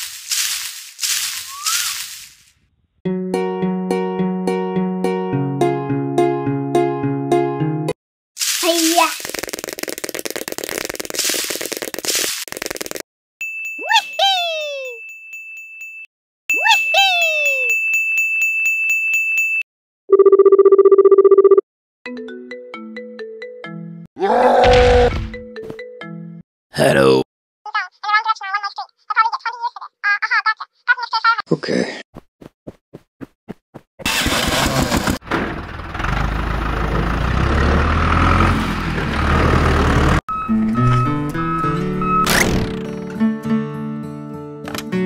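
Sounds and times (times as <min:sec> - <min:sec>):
engine cranking and idling: 0:34.1 - 0:38.2
plinking electronic tune: 0:40.3 - 0:42.3.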